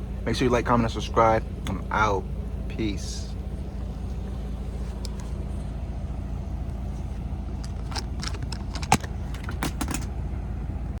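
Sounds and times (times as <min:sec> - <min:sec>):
truck engine hum: 0:00.0 - 0:11.0
clicks and rattles: 0:07.5 - 0:10.2.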